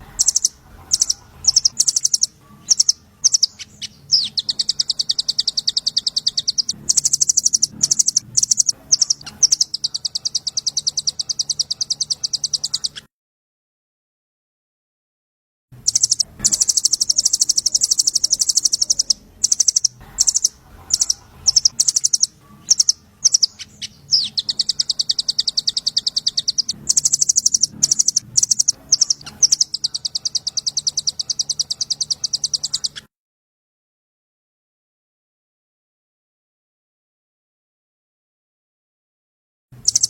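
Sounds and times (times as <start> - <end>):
songbird high-pitched trills: 0.0 - 13.1, 15.8 - 33.1, 39.8 - 40.0.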